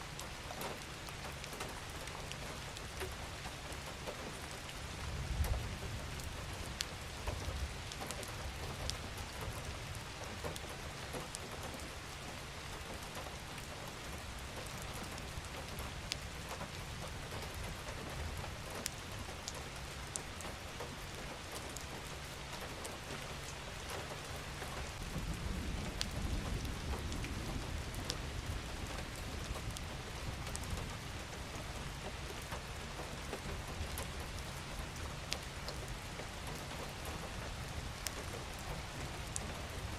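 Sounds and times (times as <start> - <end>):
steady rain falling: 0.0 - 39.9
raindrops tapping: 0.1 - 39.9
distant thunder rumble: 25.0 - 31.0.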